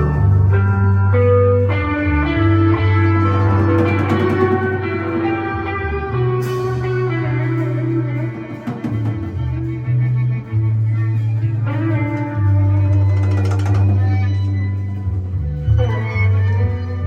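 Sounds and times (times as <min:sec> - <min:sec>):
drum kit and cymbal hits: 0:00.0 - 0:10.2
bass guitar: 0:00.0 - 0:17.0
electric guitar: 0:00.0 - 0:17.0.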